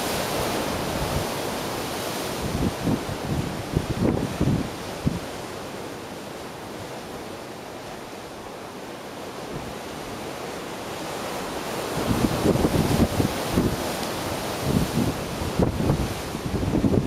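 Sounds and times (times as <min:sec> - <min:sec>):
ocean surf on coast: 0:00.0 - 0:17.0
wind buffeting microphone: 0:02.4 - 0:05.4, 0:12.0 - 0:17.0.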